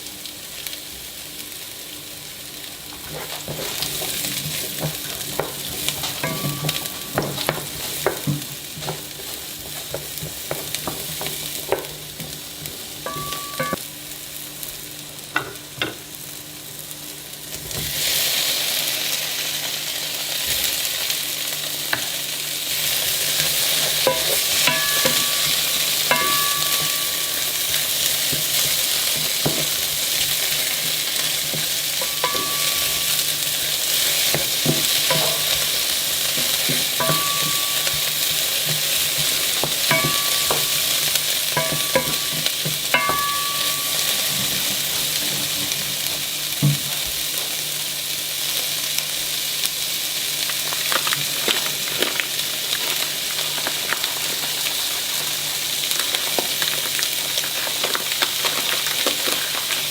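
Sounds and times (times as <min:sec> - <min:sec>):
food sizzling in a frying pan: 0:00.0 - 0:59.9
utensil clinking against pan: 0:03.1 - 0:11.9, 0:13.0 - 0:13.8, 0:23.9 - 0:29.8, 0:30.8 - 0:33.4, 0:34.3 - 0:45.4.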